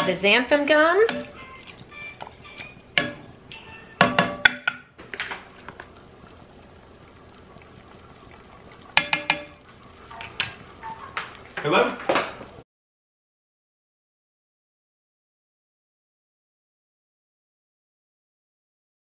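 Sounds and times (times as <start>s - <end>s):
utensils clinking on saucepan: 0.0s - 3.3s, 9.0s - 11.2s.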